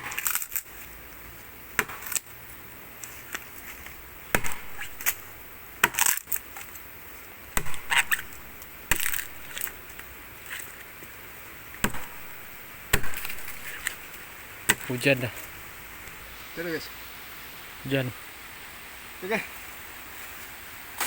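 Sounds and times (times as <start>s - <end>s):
axe chopping tree trunk: 0.0s - 0.7s, 1.7s - 2.3s, 3.2s - 6.7s, 7.5s - 10.8s, 11.7s - 15.3s.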